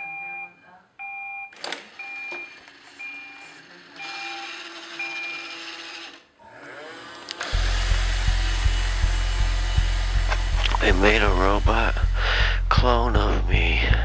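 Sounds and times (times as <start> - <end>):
small motor whirring hiss: 2.6 - 8.6.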